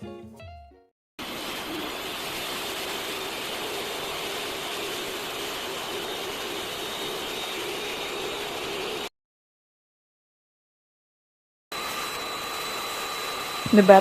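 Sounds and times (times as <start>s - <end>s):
electric mixer beating batter: 1.2s - 9.1s, 11.7s - 14.0s.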